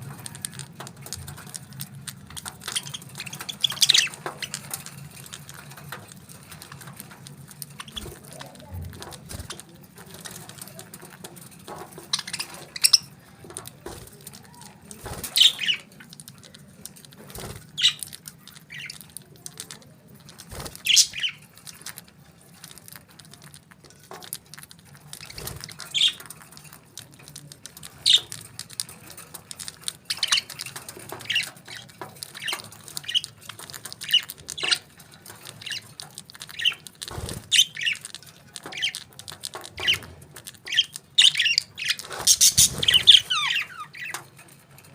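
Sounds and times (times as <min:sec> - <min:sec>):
parrots chirping and squawking: 0:00.0 - 0:08.4, 0:11.6 - 0:16.5, 0:17.3 - 0:19.3, 0:20.6 - 0:22.0, 0:24.9 - 0:26.4, 0:27.8 - 0:44.4.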